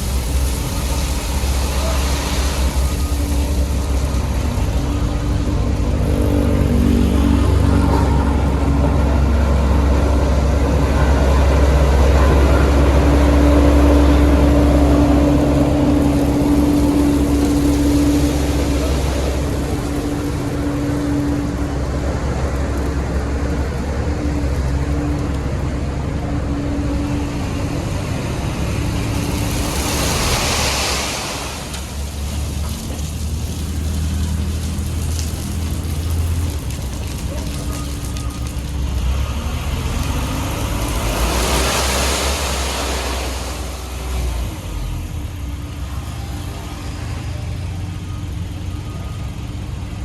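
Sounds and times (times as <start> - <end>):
rushing hiss: 0.0 - 4.8, 29.1 - 38.4
heavy diesel engine running: 0.0 - 50.0.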